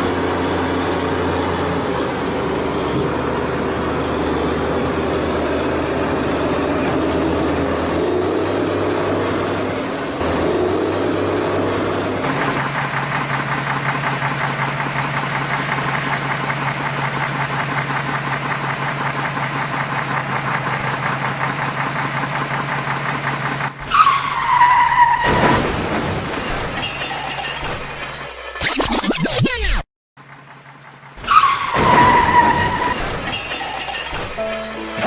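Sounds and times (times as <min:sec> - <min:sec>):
short falling tone: 0:34.4 - 0:35.0.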